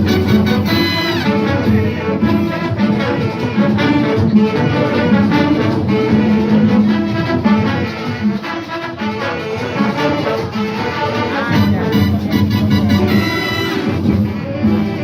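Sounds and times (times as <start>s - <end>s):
big band brass passage: 0.0s - 15.0s
repeating bass line: 10.5s - 14.2s.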